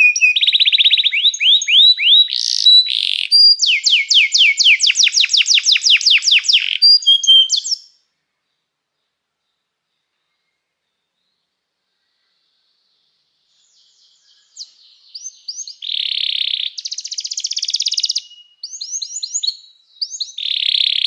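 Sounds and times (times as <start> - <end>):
canary singing trilled song: 0.0 - 8.0, 13.6 - 21.0.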